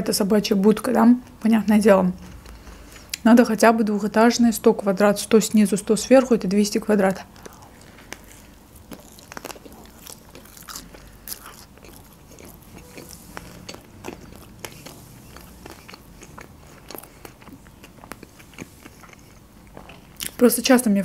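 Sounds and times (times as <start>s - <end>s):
close chewing with wet mouth sounds: 7.0s - 20.4s.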